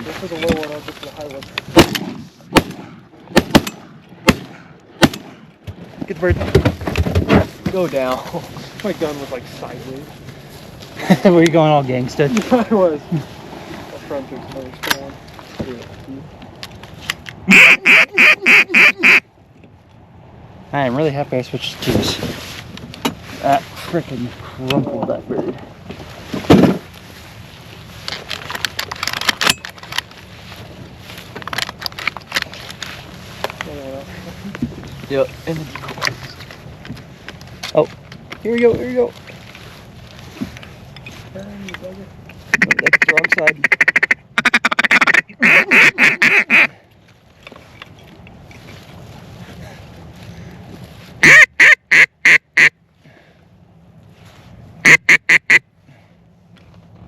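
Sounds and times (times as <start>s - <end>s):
waterfowl call honking: 17.5s - 19.3s, 42.5s - 46.8s, 51.2s - 52.8s, 54.8s - 55.6s.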